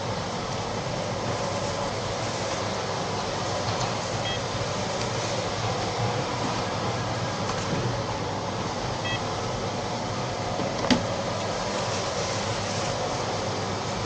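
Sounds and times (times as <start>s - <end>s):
background hum and rumble: 0.0s - 14.0s
short electronic beep: 4.2s - 4.4s, 9.0s - 9.2s.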